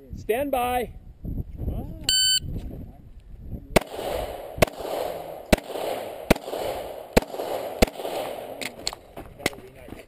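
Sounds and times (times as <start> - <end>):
pistol shots with echo: 3.8 - 9.1.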